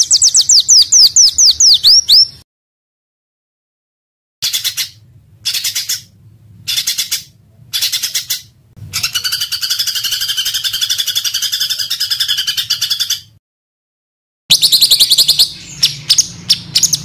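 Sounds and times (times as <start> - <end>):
songbird harsh rattling trills: 9.0 - 13.3.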